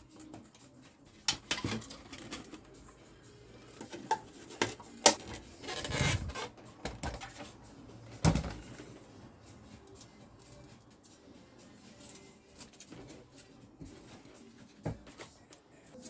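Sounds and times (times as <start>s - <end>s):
scraping or rubbing: 4.4s - 7.7s.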